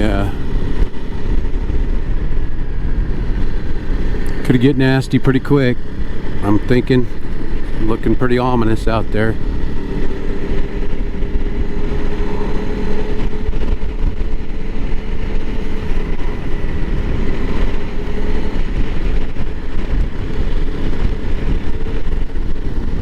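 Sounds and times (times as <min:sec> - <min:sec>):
motorcycle engine running: 0:00.0 - 0:23.0
wind and road noise: 0:00.0 - 0:23.0.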